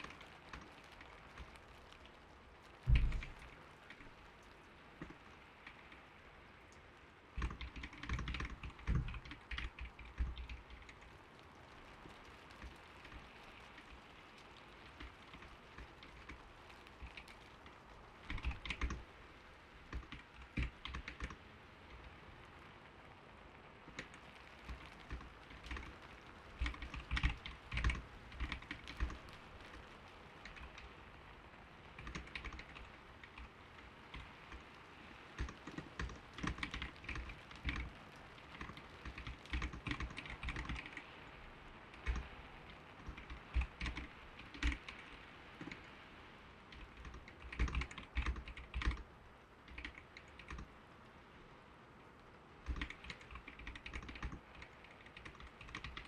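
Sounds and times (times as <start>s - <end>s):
typing on a keyboard: 0.0s - 2.0s, 2.9s - 4.1s, 7.4s - 11.2s, 14.9s - 19.0s, 19.9s - 21.4s, 23.9s - 29.8s, 30.4s - 31.0s, 32.0s - 33.5s, 35.4s - 41.2s, 41.9s - 45.9s, 46.7s - 49.1s, 49.7s - 50.7s, 52.6s - 56.0s
soft rain patter: 0.0s - 56.0s.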